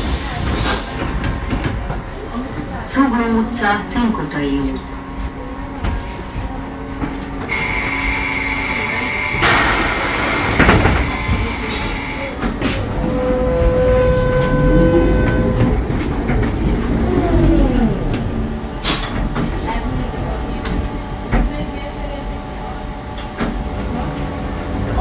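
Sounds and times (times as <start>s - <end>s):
loud air hiss: 7.5s - 12.3s.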